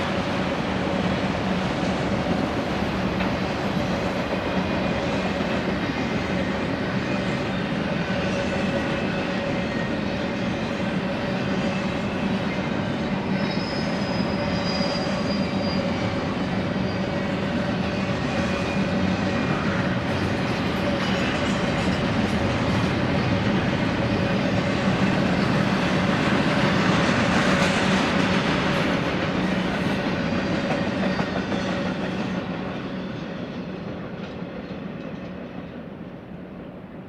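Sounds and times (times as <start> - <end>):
train wheels rumbling on rail: 0.0 - 37.0
high wheel squeals: 11.3 - 19.8.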